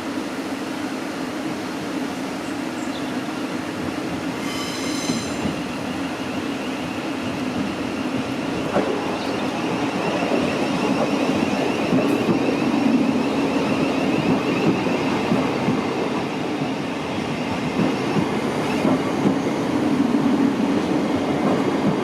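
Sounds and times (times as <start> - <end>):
electric train rumbling: 0.0 - 22.0
high-pitched squeal: 4.4 - 5.8.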